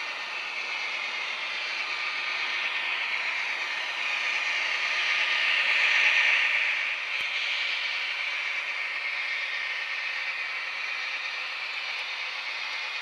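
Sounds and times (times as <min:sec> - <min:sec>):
model train rushing hiss: 0:00.0 - 0:13.0.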